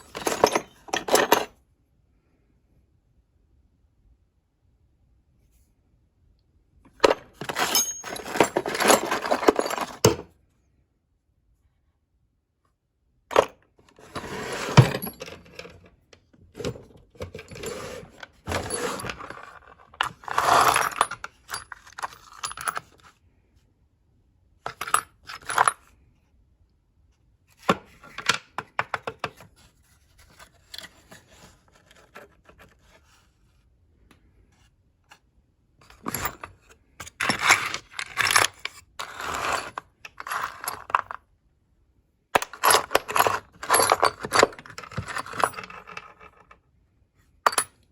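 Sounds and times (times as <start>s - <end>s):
metal tools clinking and scraping: 0.0s - 1.5s, 7.0s - 10.3s, 13.3s - 15.9s, 16.6s - 22.9s, 35.8s - 41.2s, 42.4s - 46.5s, 47.5s - 47.8s.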